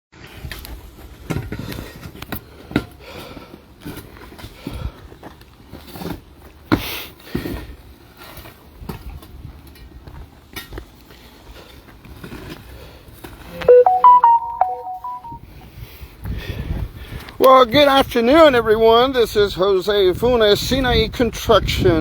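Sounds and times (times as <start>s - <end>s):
electronic chime: 13.7s - 15.4s.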